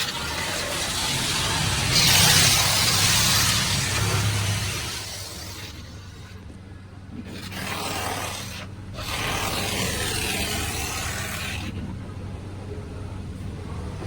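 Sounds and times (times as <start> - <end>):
high pressure water spray hissing: 0.0 - 5.9
low machine hum: 0.0 - 14.0.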